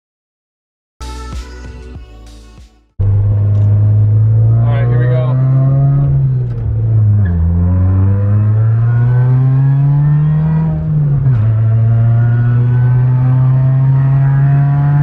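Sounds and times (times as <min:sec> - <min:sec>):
car engine accelerating: 0:03.0 - 0:15.0.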